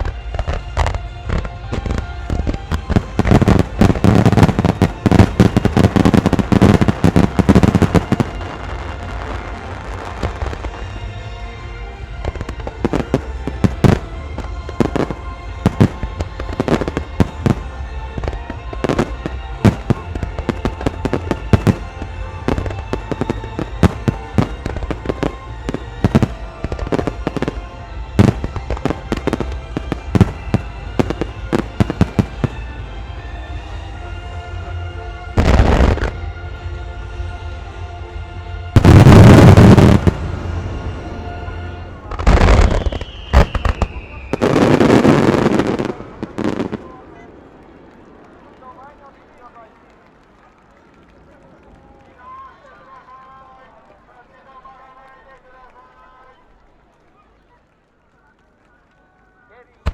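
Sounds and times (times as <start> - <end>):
fireworks bursts and crackling: 0.0 - 34.1, 35.4 - 36.2, 38.8 - 59.9
music playing: 0.0 - 47.1
sharp firework bangs: 2.6 - 8.5, 12.9 - 32.8, 38.8 - 40.4.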